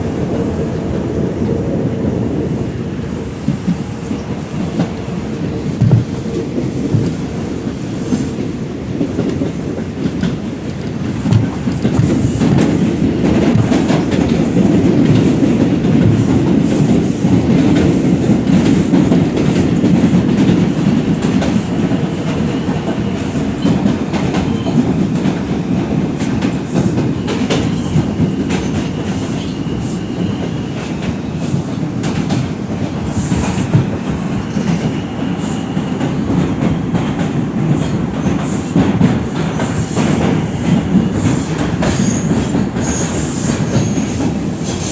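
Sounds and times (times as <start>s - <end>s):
subway wheels rumbling on rail: 0.0s - 44.9s.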